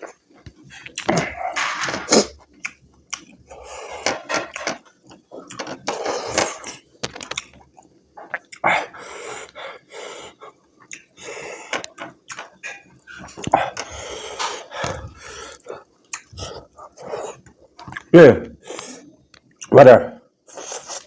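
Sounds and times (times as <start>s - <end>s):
wet chewing and slurping: 0.0s - 18.1s
hissing breaths: 8.6s - 17.5s.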